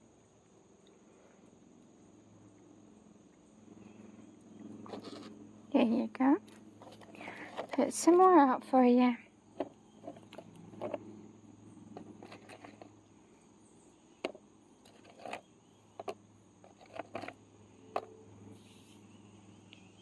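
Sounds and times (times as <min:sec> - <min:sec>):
faint steady hum: 0:00.0 - 0:20.0
animals eating with crunches: 0:03.8 - 0:05.4, 0:09.5 - 0:13.1.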